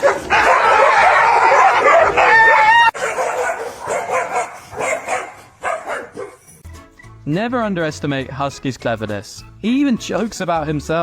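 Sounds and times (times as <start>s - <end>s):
dog barking and yipping: 0.0s - 6.6s.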